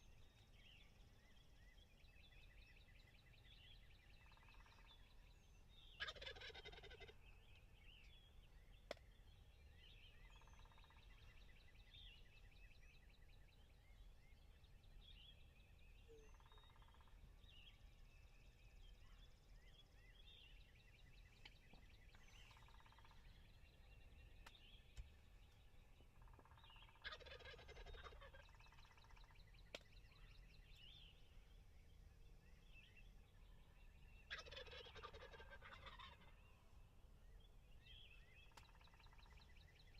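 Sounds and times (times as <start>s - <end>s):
small birds chirping: 0.0s - 39.9s
turkey gobbling: 6.0s - 7.2s, 26.3s - 29.0s, 34.3s - 36.4s.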